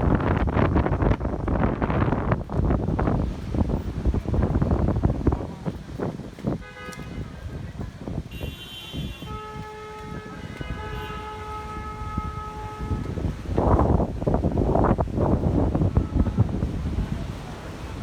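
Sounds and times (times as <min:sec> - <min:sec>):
wind on microphone: 0:00.0 - 0:18.0
car horns honking: 0:06.5 - 0:07.5, 0:08.3 - 0:13.8.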